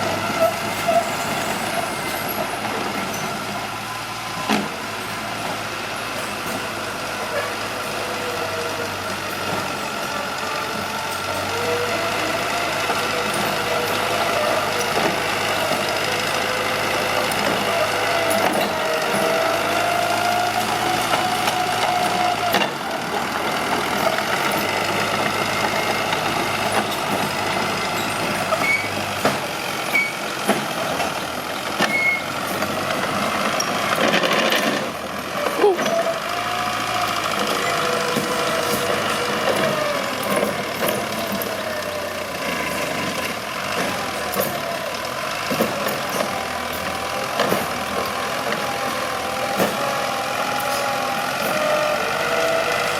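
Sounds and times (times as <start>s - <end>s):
bulldozer diesel engine working: 0.0s - 52.9s
knocks and clanks: 28.0s - 29.5s.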